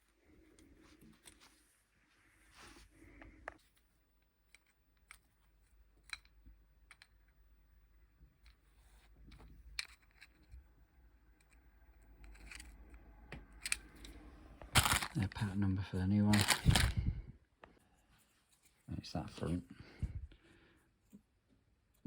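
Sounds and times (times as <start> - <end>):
small plastic parts clicking: 4.4 - 7.4, 9.2 - 10.6, 11.3 - 15.4, 16.3 - 17.0.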